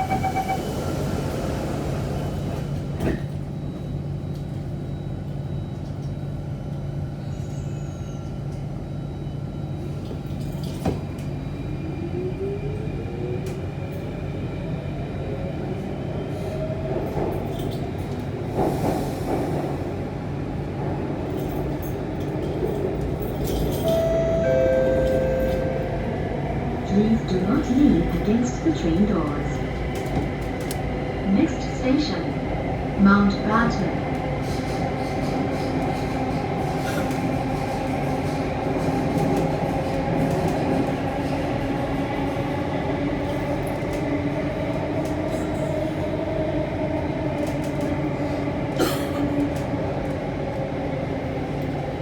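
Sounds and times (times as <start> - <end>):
train running rumble: 8.2 - 52.0
short chime tones: 23.8 - 26.0.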